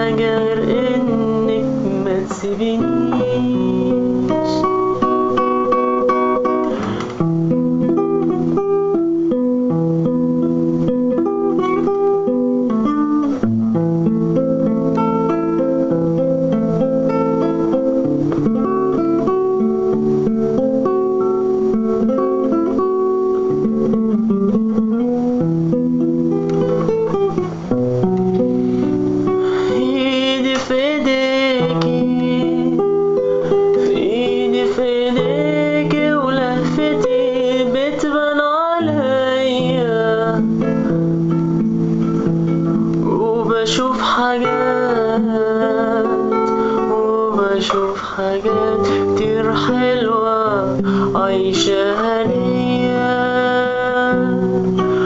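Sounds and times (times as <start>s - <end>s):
acoustic guitar playing: 0.0s - 55.0s
wordless vocal: 43.1s - 55.0s.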